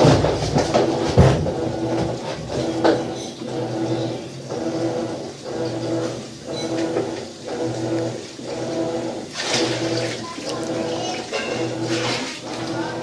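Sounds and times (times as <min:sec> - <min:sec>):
washing machine agitating: 0:00.0 - 0:13.0.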